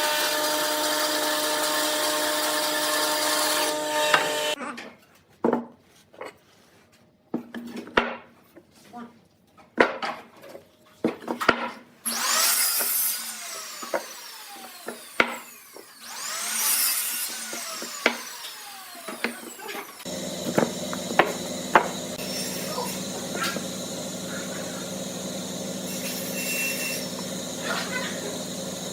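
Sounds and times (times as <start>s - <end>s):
tool cutting wood: 0.0s - 4.6s, 11.5s - 28.9s
machine humming: 19.8s - 28.9s.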